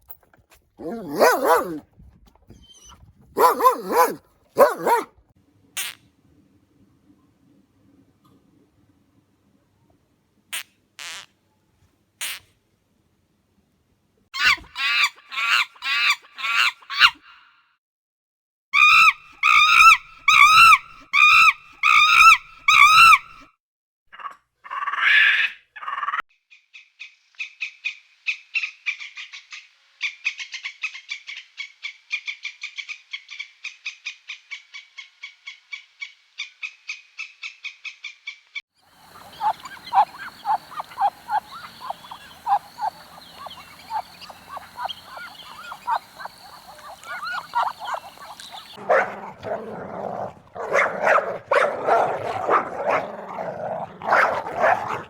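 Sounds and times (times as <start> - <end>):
pitched animal calls: 0.8 - 1.8, 2.6 - 5.1, 18.8 - 23.4, 39.0 - 55.0
chorus of short animal calls: 3.4 - 5.0, 39.0 - 49.4
rapid animal trill: 3.4 - 5.0, 39.0 - 55.0.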